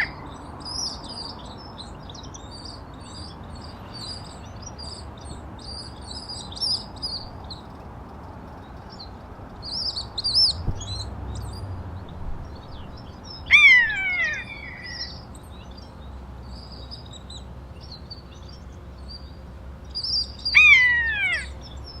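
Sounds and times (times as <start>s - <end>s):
downward sweeping bird call: 0.0s - 1.0s, 12.4s - 15.3s, 20.0s - 22.0s
small birds chirping: 0.0s - 22.0s.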